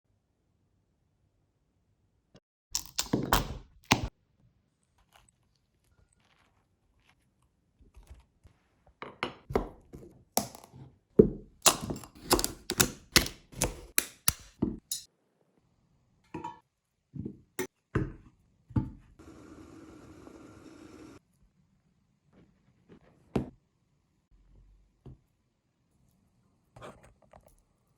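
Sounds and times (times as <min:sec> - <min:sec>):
knife cutting pumpkin: 0:11.6 - 0:14.4.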